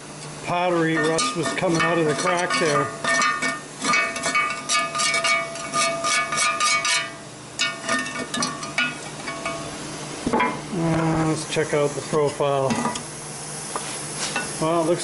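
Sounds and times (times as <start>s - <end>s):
metal tool scraping sheet metal: 0.7s - 9.5s.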